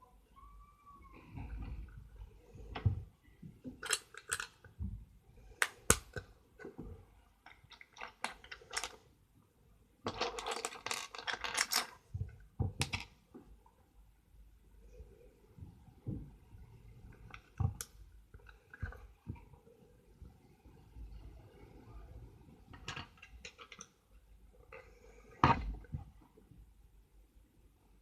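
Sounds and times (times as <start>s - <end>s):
plastic bricks clicking: 3.7s - 4.7s, 7.5s - 9.0s, 10.1s - 12.0s, 12.8s - 13.1s
plastic pieces rattling: 7.7s - 9.0s, 10.1s - 12.0s.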